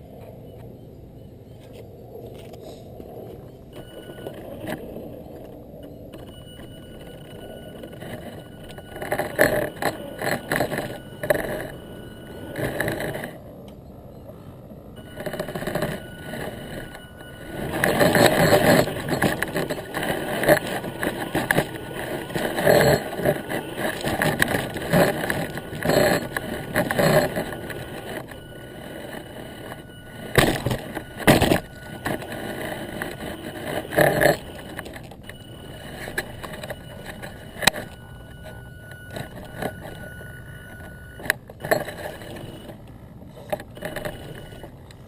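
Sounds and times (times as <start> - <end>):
faint steady whine: 0.0 - 45.0
wheels and chassis rattling: 0.0 - 45.0
toy truck motor hum: 15.0 - 45.0.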